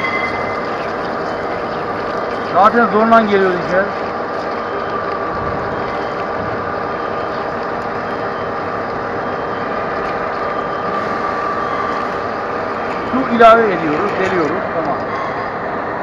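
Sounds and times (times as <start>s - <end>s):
metal lathe running: 5.0s - 16.0s.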